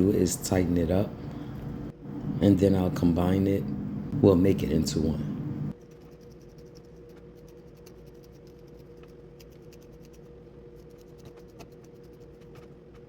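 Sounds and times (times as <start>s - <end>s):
steady low hum: 0.0s - 13.0s
clicks and scratches of hair: 5.7s - 13.0s.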